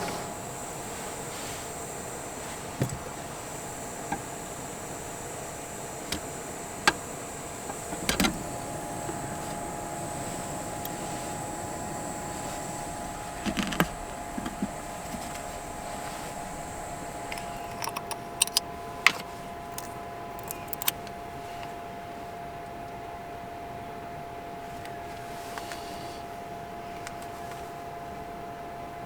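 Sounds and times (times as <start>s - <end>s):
steady mechanical hum: 0.0s - 29.0s
light clicks and knocks: 6.0s - 21.2s.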